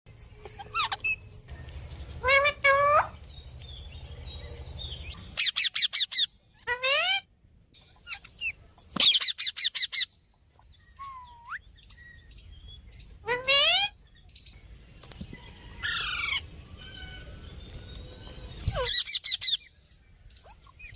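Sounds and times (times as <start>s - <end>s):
parrot chirps and squawks: 0.4s - 1.4s, 2.2s - 3.2s, 5.2s - 7.3s, 7.9s - 10.2s, 10.9s - 11.6s, 13.0s - 14.0s, 15.8s - 17.4s, 18.6s - 19.7s.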